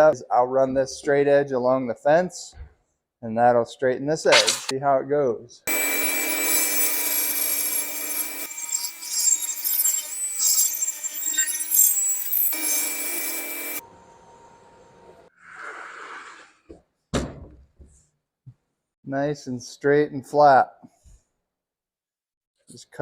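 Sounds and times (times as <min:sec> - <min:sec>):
saw blade ripping through board: 0:04.3 - 0:04.7, 0:05.7 - 0:13.8
table saw whining: 0:05.7 - 0:15.0.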